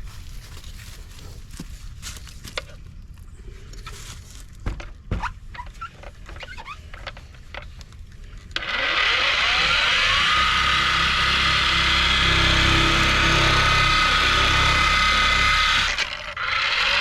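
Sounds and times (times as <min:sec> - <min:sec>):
handling clicks and squeaks: 0:05.1 - 0:08.0
power tool motor whining: 0:08.5 - 0:17.0.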